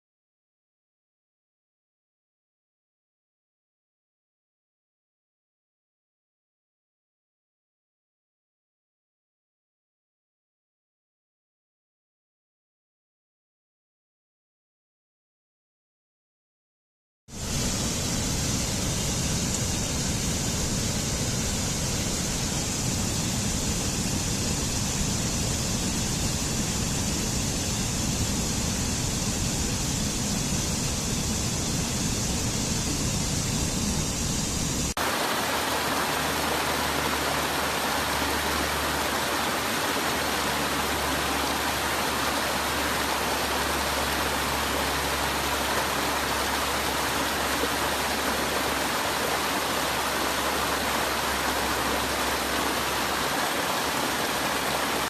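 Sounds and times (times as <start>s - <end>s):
waterfall rushing: 17.4s - 55.0s.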